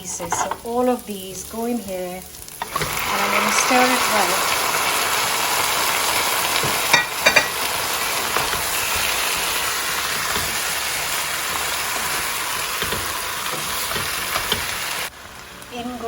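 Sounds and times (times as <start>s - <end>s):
chicken sizzling in a pan: 0.0s - 16.0s
spoon clanking against pan: 6.6s - 15.1s.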